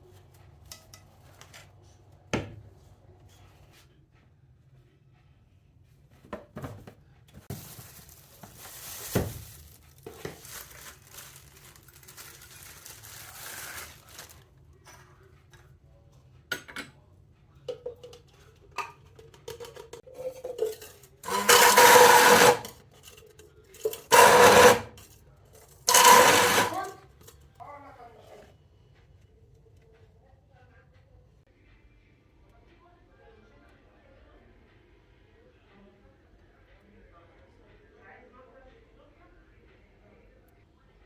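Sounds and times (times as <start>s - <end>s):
utensils and dishes clinking: 17.6s - 27.5s
kitchen appliance motor bursts: 21.3s - 22.7s, 24.0s - 24.9s, 25.9s - 27.0s.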